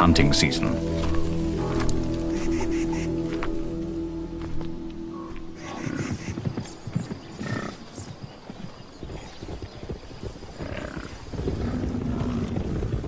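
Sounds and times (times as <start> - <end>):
hoof thuds: 0.9 - 13.0
bison calls: 2.3 - 3.4, 5.1 - 6.4.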